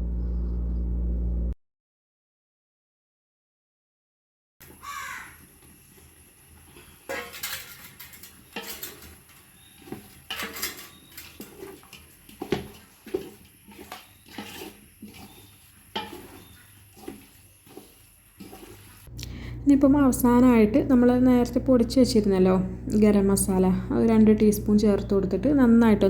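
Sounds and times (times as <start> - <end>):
spoon scraping a cooking pot: 5.6 - 19.1.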